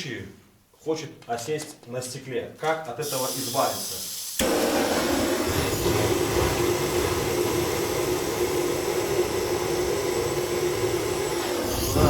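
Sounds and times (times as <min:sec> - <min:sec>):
motor humming and whirring: 0:04.4 - 0:12.0.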